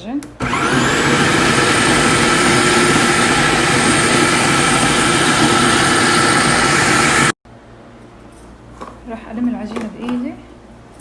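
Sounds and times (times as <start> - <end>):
food processor motor whining: 0.4 - 7.4.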